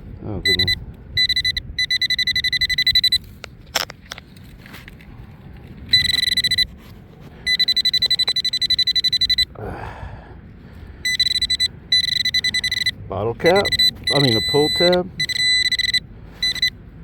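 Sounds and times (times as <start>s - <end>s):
low wind rumble: 0.0s - 17.0s
pinpointer beeping: 0.4s - 3.3s, 5.9s - 6.7s, 7.5s - 9.5s, 11.0s - 16.8s
scraping clicks in dirt: 3.2s - 6.0s.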